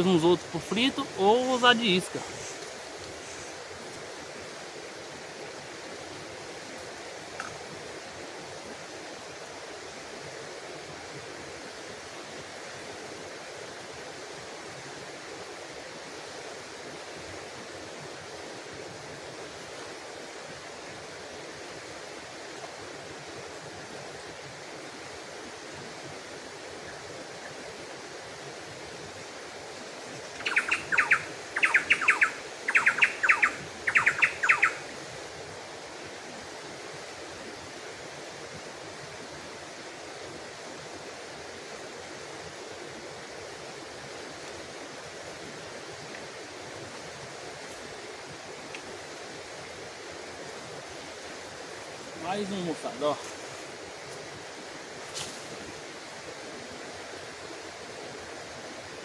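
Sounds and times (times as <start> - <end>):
stream water flowing: 0.0 - 59.0
bird rapid chirps: 30.4 - 34.8.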